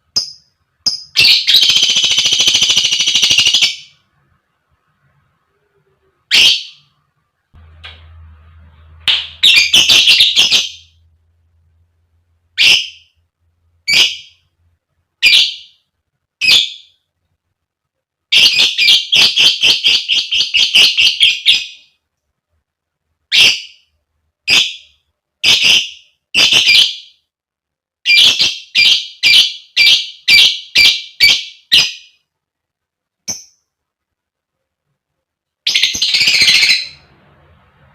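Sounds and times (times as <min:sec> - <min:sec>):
lovebird chirping: 0:00.0 - 0:04.0, 0:05.6 - 0:07.0, 0:08.4 - 0:11.0, 0:12.6 - 0:14.6, 0:15.2 - 0:15.8, 0:16.4 - 0:17.0, 0:18.3 - 0:22.0, 0:23.3 - 0:23.9, 0:28.0 - 0:32.2, 0:33.2 - 0:33.7, 0:35.6 - 0:37.1.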